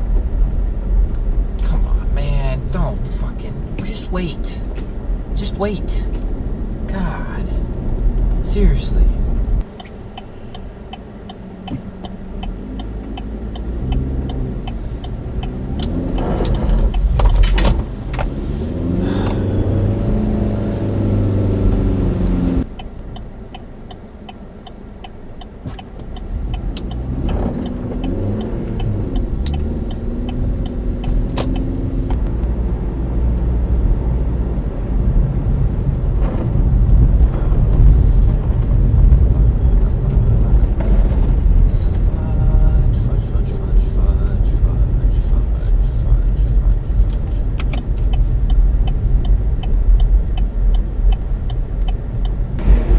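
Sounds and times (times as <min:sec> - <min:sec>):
car engine revving: 0:00.0 - 0:52.9
faint regular ticking: 0:08.2 - 0:18.4, 0:22.6 - 0:32.4, 0:37.2 - 0:52.6.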